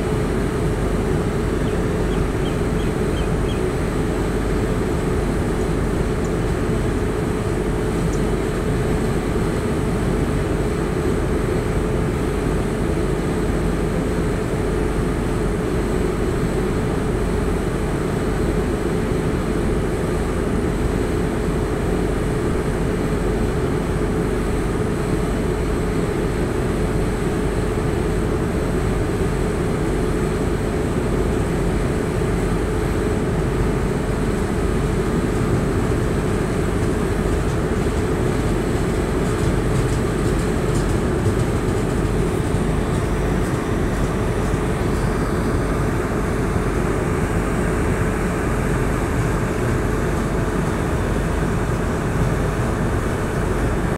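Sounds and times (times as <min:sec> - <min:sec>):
train wheels rumbling on rails: 0:34.4 - 0:47.6.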